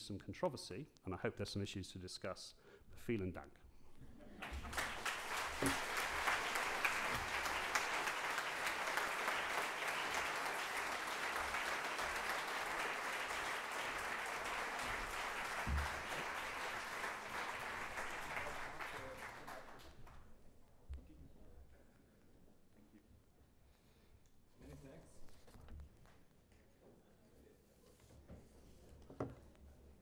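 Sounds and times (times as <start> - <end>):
large audience applauding: 4.4 - 20.2.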